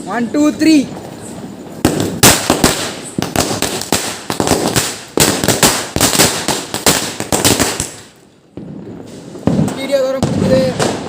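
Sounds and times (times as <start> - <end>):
string of firecrackers banging: 0.6 - 11.0.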